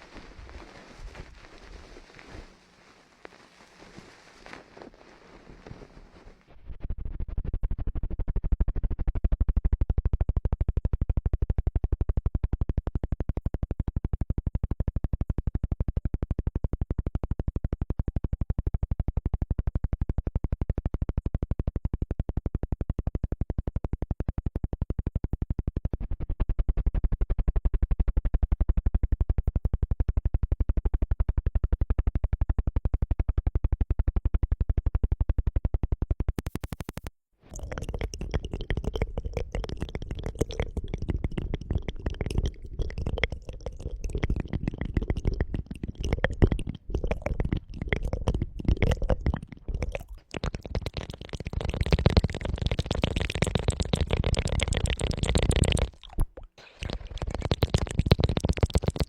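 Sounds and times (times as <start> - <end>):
soft hiss: 0.0 - 6.5
rapid asmr clicking: 6.8 - 59.0.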